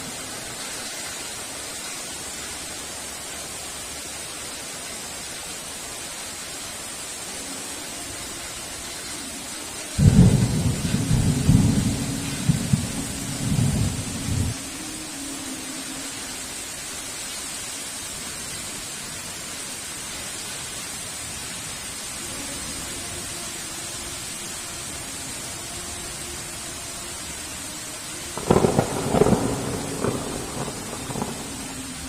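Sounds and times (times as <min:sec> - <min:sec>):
heavy rain: 0:00.0 - 0:32.0
thunder clap rumbling: 0:10.0 - 0:14.6, 0:28.4 - 0:32.0.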